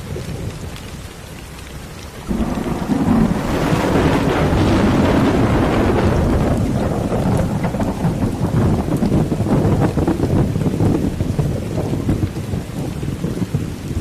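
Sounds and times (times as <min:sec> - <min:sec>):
rain falling: 0:00.0 - 0:14.0
thunder rumbling: 0:00.0 - 0:14.0
loud thunder peal: 0:02.2 - 0:11.0.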